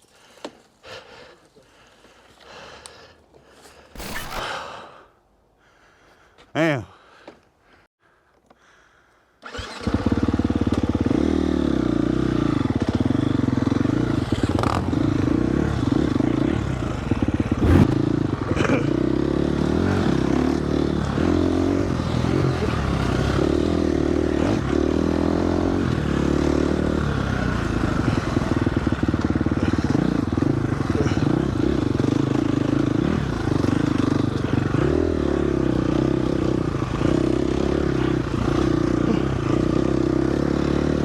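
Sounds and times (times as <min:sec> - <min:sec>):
dirt bike engine revving: 0:04.0 - 0:04.6, 0:09.4 - 0:41.0.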